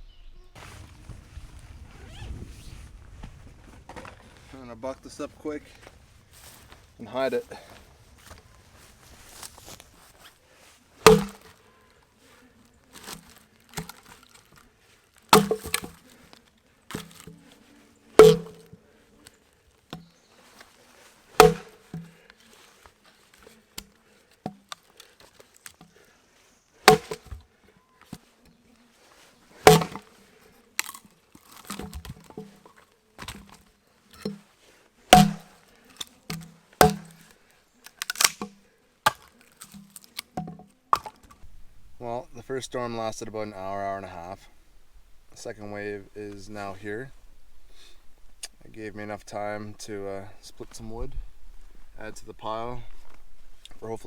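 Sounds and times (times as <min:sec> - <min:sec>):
axe chopping log: 0:11.0 - 0:11.6, 0:13.0 - 0:14.4, 0:15.3 - 0:16.2, 0:16.9 - 0:17.3, 0:18.2 - 0:18.7, 0:21.4 - 0:22.2, 0:26.9 - 0:27.4, 0:29.6 - 0:30.2, 0:30.8 - 0:32.5, 0:35.1 - 0:41.3.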